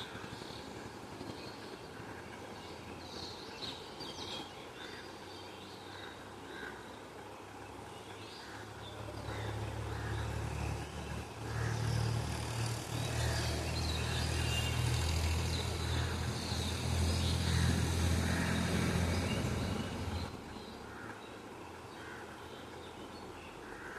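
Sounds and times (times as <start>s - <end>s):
low engine rumble: 7.2s - 23.9s
birds chirping: 7.5s - 23.9s.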